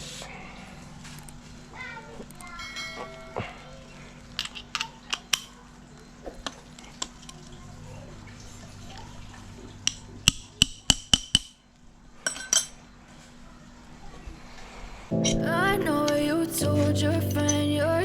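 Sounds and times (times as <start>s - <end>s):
metal tools clinking on engine parts: 12.2s - 12.8s.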